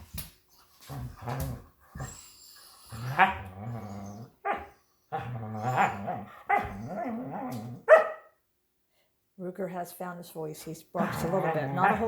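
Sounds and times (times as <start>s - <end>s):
dogs growling: 2.8s - 7.9s, 11.0s - 12.0s
dog barking: 4.4s - 4.7s, 6.5s - 6.7s, 7.9s - 8.3s.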